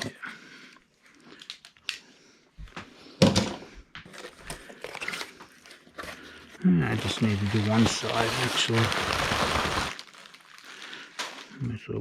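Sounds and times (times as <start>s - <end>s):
cardboard box rustling: 6.9s - 10.3s.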